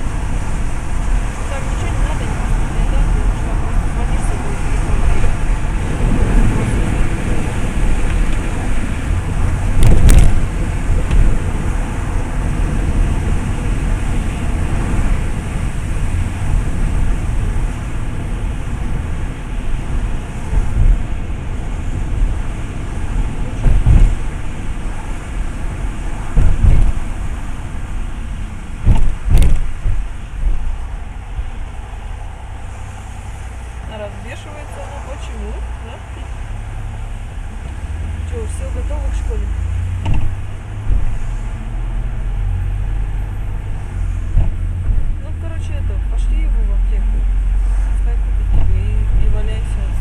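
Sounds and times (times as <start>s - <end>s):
car road and engine rumble: 0.0s - 50.0s
sharp thumps: 9.7s - 11.4s, 23.6s - 24.4s, 26.3s - 27.3s, 28.8s - 30.8s, 39.9s - 41.3s, 44.2s - 45.2s.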